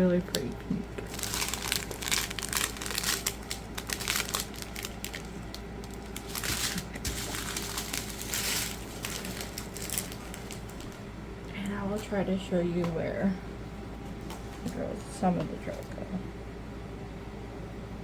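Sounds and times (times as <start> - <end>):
plastic packaging crinkling: 0.2 - 11.1.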